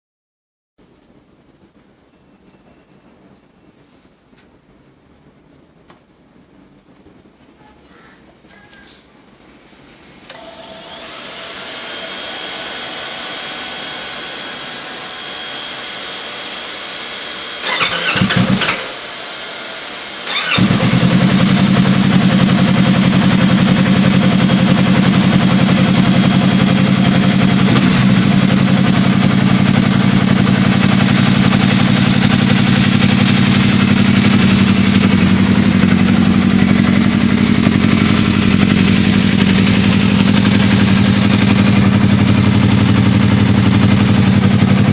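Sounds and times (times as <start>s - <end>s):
motorcycle engine idling: 20.3s - 44.9s.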